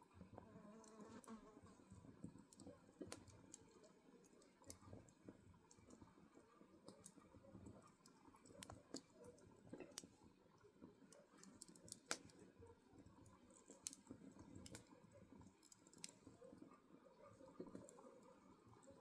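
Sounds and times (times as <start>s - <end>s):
soft rustle of flames: 0.0s - 19.0s
firewood crackling: 2.2s - 6.0s, 11.1s - 16.4s
sharp pops and snaps: 11.1s - 12.4s, 13.6s - 14.9s, 15.6s - 16.2s.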